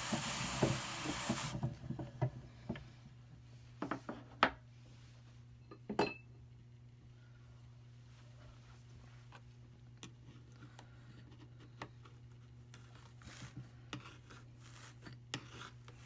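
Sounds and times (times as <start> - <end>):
drum carder brushing with ticking: 0.0 - 1.6.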